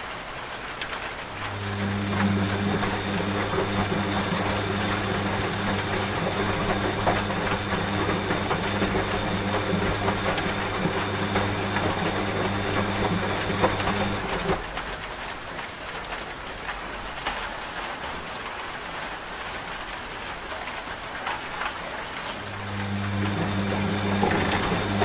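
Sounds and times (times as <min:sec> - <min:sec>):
steady rain: 0:00.0 - 0:25.0
washing machine humming: 0:01.1 - 0:15.0, 0:22.0 - 0:25.0.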